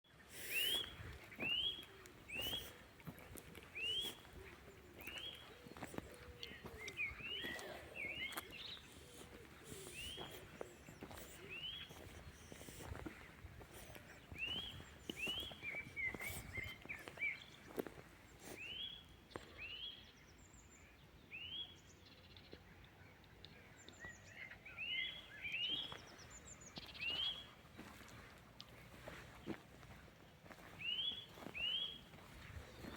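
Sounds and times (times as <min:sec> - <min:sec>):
bird whistled notes: 0:00.4 - 0:02.8
high bird chirps: 0:00.4 - 0:02.8, 0:03.7 - 0:13.2.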